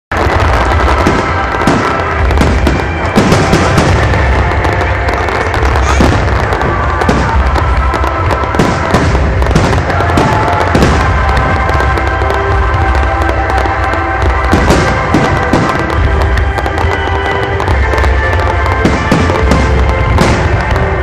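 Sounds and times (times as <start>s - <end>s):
fireworks bangs and crackles: 0.1s - 21.0s
music playing: 0.1s - 21.0s.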